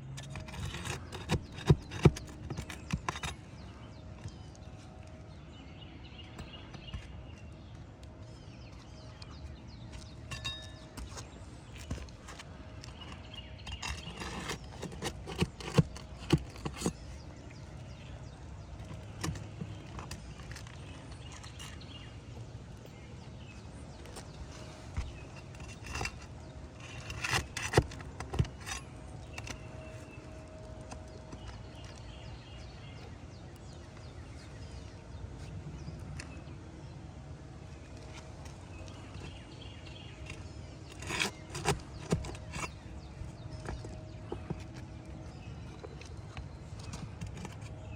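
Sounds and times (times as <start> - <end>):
hand tools scraping on a roof: 0.1 - 4.4, 10.0 - 22.1, 24.0 - 31.8, 38.5 - 47.9.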